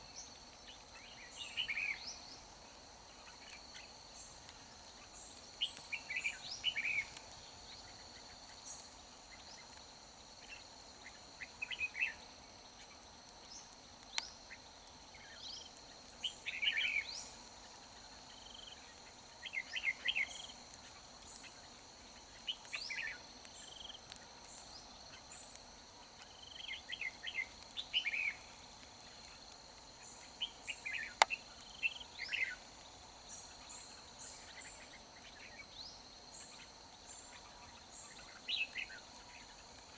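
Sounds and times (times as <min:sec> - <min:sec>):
high buzz of insects: 0:00.0 - 0:39.9
bird singing warbled phrases: 0:05.6 - 0:07.9, 0:11.4 - 0:12.2, 0:15.2 - 0:17.4, 0:19.4 - 0:20.5, 0:26.5 - 0:28.4, 0:30.4 - 0:32.6.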